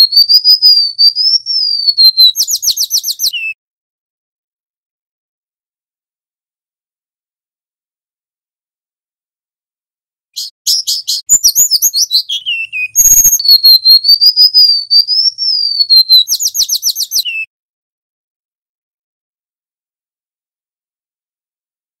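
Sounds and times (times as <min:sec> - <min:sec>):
bird singing high whistles: 0:00.0 - 0:03.6, 0:10.4 - 0:17.5.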